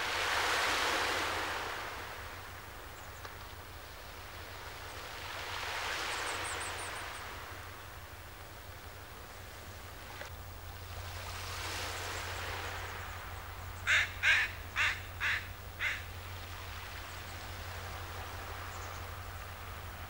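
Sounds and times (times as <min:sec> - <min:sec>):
water at the shoreline: 0:00.0 - 0:20.0
wind: 0:00.0 - 0:20.0
bird calling: 0:12.0 - 0:16.2.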